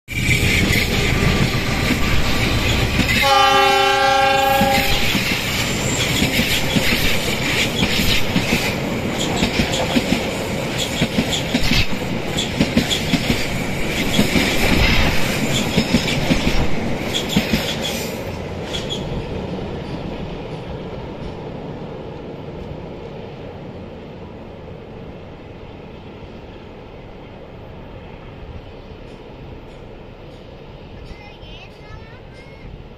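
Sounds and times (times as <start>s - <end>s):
train passing over bridge: 0.1s - 32.9s
wheels clacking over rails: 0.3s - 3.3s, 4.5s - 21.5s
train horn: 0.3s - 5.2s.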